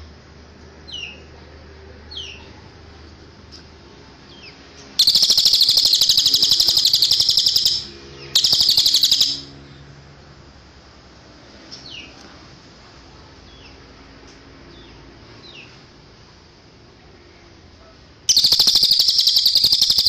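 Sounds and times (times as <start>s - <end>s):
bird rapid high trills: 5.0s - 9.6s, 18.3s - 20.0s.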